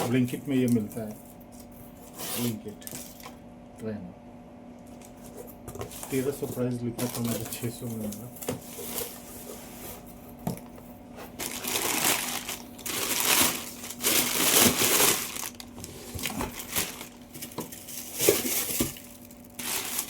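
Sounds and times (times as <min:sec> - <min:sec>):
plastic packaging crinkling: 0:07.0 - 0:09.3, 0:11.3 - 0:20.0.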